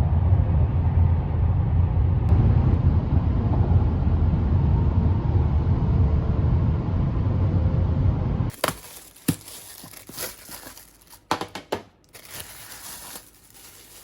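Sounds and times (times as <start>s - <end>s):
road rumble inside car: 0.0s - 8.6s.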